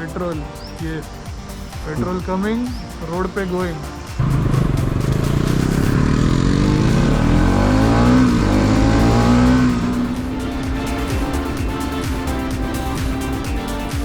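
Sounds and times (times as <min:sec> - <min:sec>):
motorcycle engine accelerating: 0:04.1 - 0:14.0.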